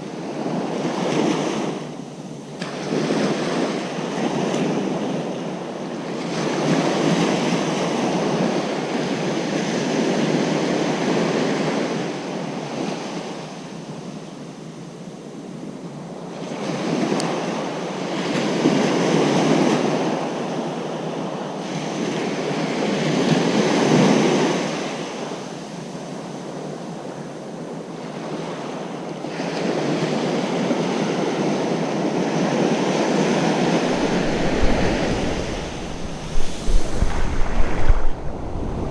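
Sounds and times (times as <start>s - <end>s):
ocean surf breaking: 33.2s - 38.9s
wind on microphone: 33.2s - 38.9s.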